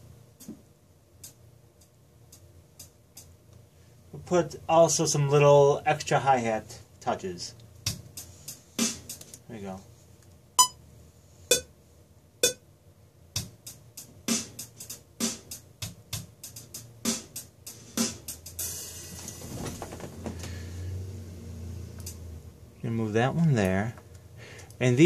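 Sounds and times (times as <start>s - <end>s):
drum loop: 7.8s - 9.4s, 13.3s - 19.4s.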